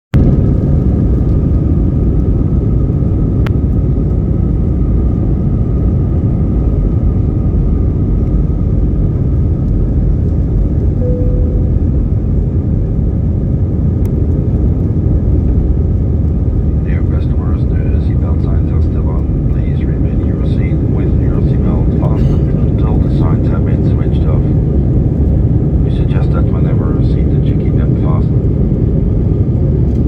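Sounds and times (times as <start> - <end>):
jet engine and airflow rumble: 0.2 - 30.0
faint hum: 9.9 - 30.0.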